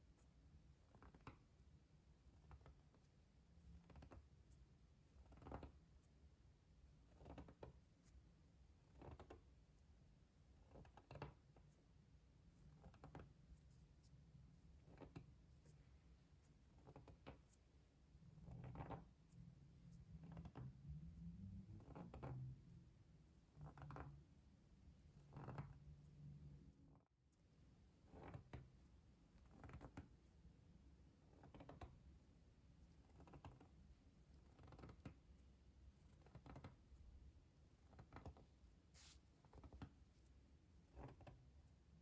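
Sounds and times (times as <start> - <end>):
soft brush strokes: 38.8 - 39.4.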